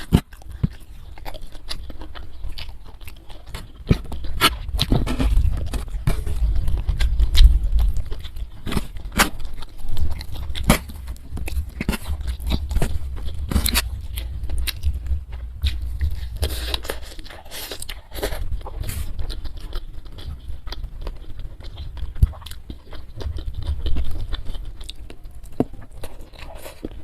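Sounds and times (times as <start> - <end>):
chewing mouth sounds: 0.0 - 27.0
low rumble: 3.3 - 26.1.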